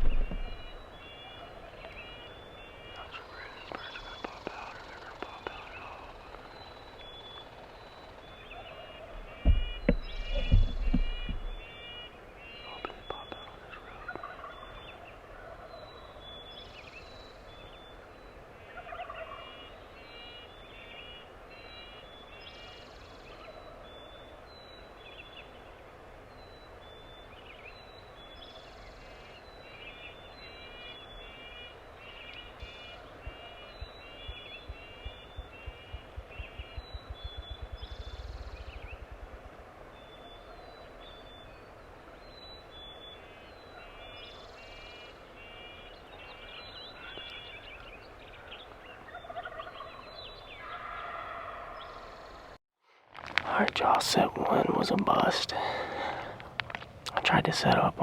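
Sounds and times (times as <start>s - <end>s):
loud thumps: 0.0s - 0.8s, 9.3s - 11.6s
birds calling: 0.0s - 52.6s, 53.2s - 58.0s
wild turkey gobbling: 7.4s - 16.2s, 18.6s - 20.4s, 43.8s - 52.2s.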